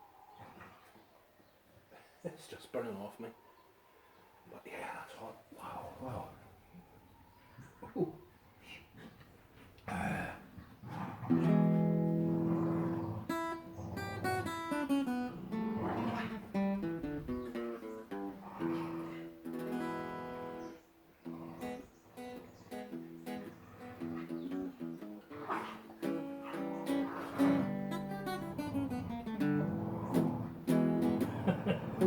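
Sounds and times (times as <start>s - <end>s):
acoustic guitar music: 11.3s - 32.0s.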